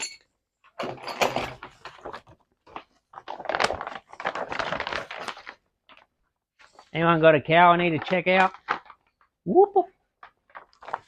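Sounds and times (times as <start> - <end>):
packaging rustling and crinkling: 1.4 - 7.0, 7.8 - 9.4, 10.1 - 11.0.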